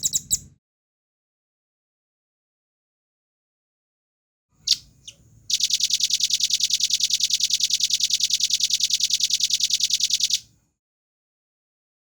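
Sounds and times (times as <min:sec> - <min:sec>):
bird fast high trill: 0:04.7 - 0:10.4.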